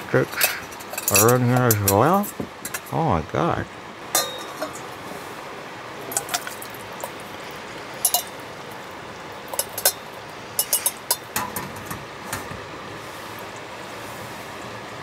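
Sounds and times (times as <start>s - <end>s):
metal utensils clinking on pot: 0.0s - 3.0s, 4.1s - 5.0s, 6.1s - 7.2s, 8.0s - 8.4s, 9.4s - 12.5s.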